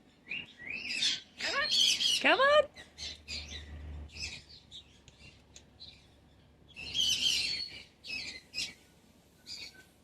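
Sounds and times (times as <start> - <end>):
faint chirps and clicks: 4.8 - 6.1.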